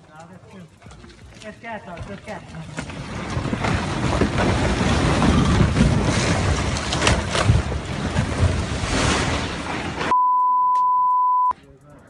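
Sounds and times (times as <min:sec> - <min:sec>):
sharp cracks: 0:00.0 - 0:10.1
wind buffeting microphone: 0:00.6 - 0:10.1.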